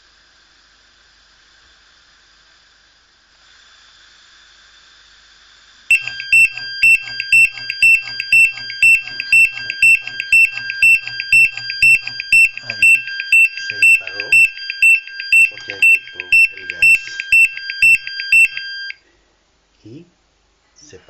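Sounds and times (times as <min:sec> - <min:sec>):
gas detector alarm beeping: 0:05.9 - 0:19.0.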